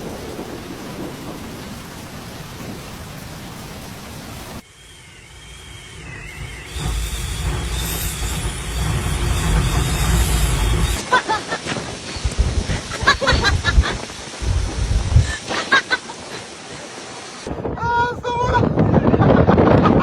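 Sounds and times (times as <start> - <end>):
stormy wind and rain: 0.0 - 20.0
faint wavering whistle: 4.6 - 11.0
wind buffeting microphone: 5.1 - 15.5, 17.4 - 20.0.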